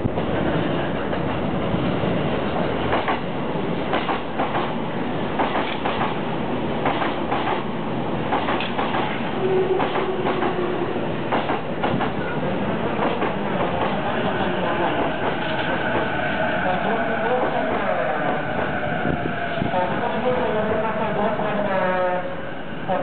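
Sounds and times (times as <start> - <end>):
train rolling rumble: 0.0 - 23.0
train wheels clacking: 2.4 - 6.2, 6.8 - 17.8.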